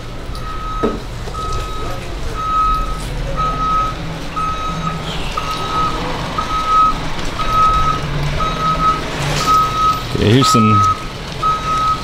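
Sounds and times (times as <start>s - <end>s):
engine running: 0.0s - 12.0s
vehicle reversing alarm beeping: 0.2s - 12.0s.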